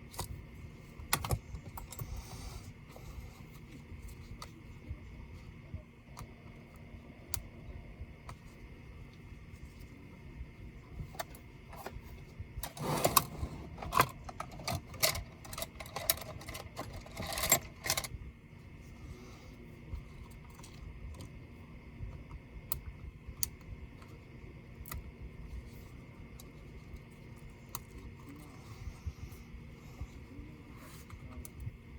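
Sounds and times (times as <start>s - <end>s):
laptop parts clicking and rattling: 1.0s - 2.4s, 12.6s - 18.2s.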